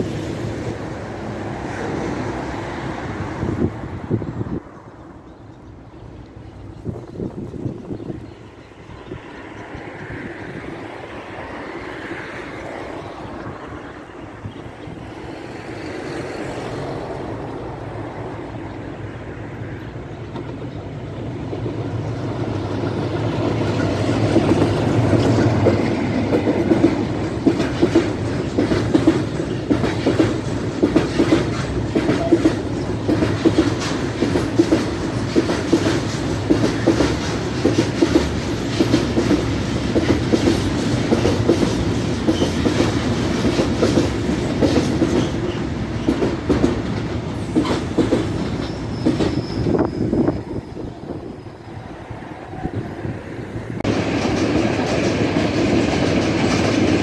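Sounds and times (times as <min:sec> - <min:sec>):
freight train rumbling: 0:00.0 - 0:57.0
wheel clacks over rail joints: 0:22.7 - 0:50.0.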